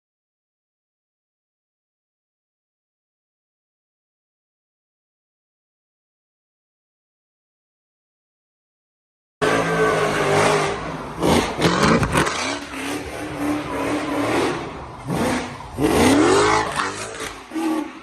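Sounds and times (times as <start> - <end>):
car engine revving hard: 9.4 - 18.0.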